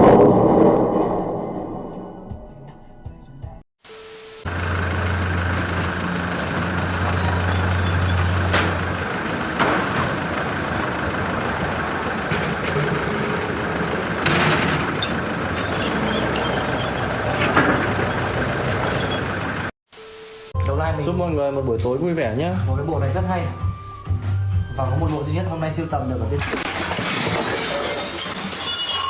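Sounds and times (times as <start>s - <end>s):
heavy vehicle engine hum: 4.4s - 19.8s.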